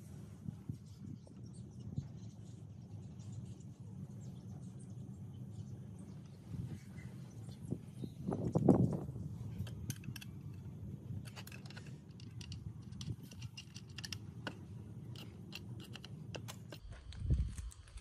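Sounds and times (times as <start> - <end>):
low steady hum: 0.0 - 18.0
light clicks and taps of metal: 9.5 - 18.0.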